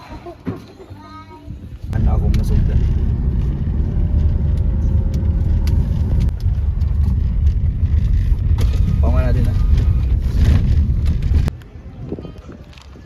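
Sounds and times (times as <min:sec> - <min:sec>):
car engine and road rumble: 0:01.5 - 0:11.7.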